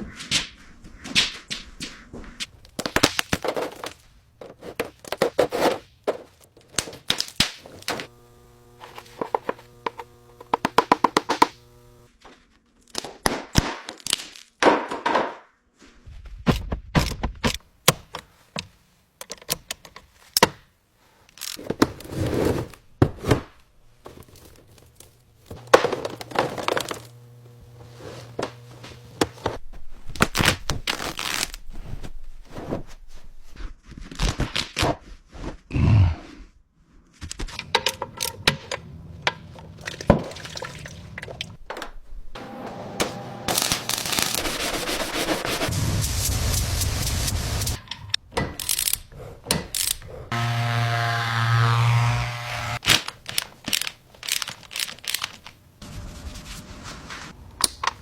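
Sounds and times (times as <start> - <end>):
steady hum: 7.9 - 12.1, 25.5 - 29.6.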